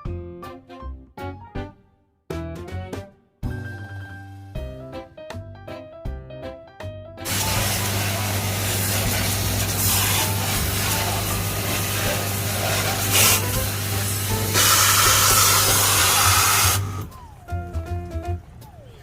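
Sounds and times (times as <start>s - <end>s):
water sprayer hissing: 7.2s - 17.1s.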